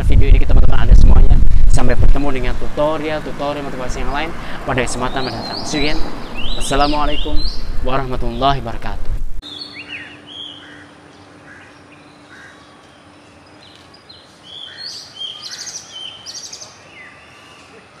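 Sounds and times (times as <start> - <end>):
outdoor background hiss: 0.0 - 18.0
small birds chirping: 3.0 - 18.0.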